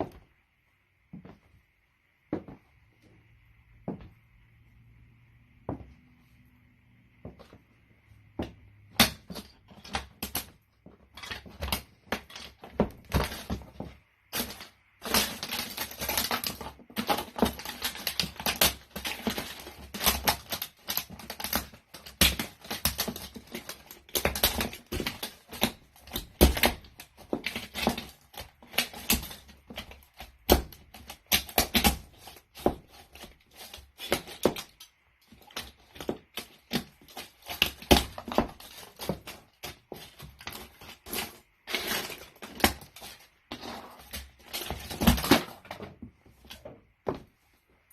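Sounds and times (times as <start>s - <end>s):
plastic toy crushed under boots: 8.9s - 46.7s.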